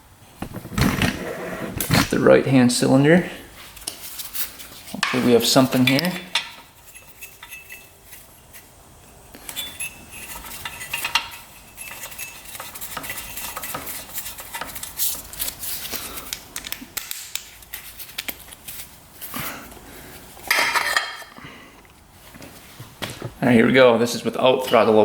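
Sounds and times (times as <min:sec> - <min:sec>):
metal tools clinking and rattling: 0:04.0 - 0:08.7, 0:09.4 - 0:15.9, 0:20.5 - 0:21.4.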